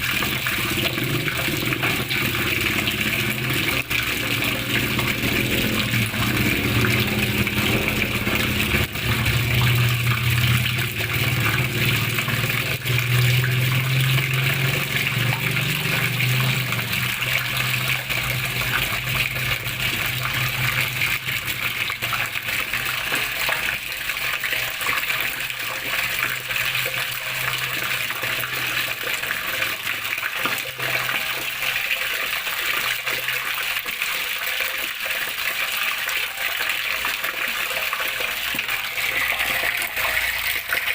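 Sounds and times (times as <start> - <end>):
low motor hum: 0.0 - 30.9
water running and splashing: 0.0 - 40.9.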